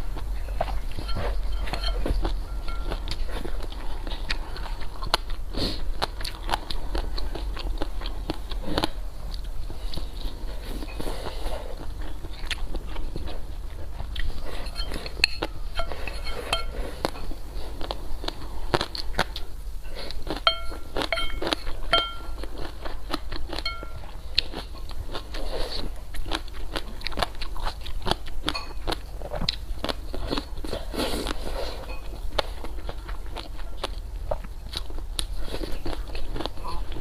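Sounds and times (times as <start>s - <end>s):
person chewing: 0.0s - 37.0s
short ringing clinks: 20.5s - 22.3s.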